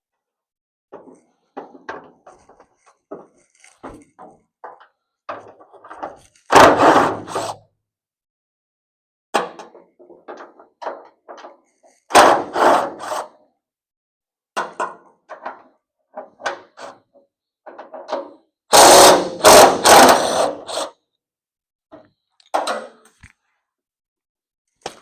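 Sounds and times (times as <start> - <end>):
power wrench bursts: 18.7 - 20.9.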